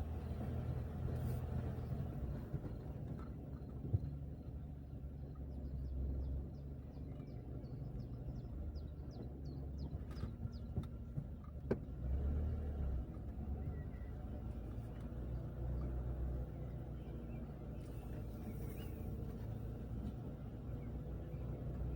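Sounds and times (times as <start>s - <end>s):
car tyre and engine rumble: 0.0s - 21.9s.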